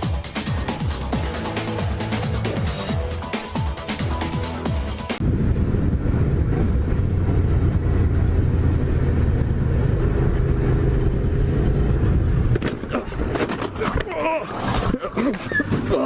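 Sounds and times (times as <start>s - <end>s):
car driving rumble: 5.2s - 15.6s.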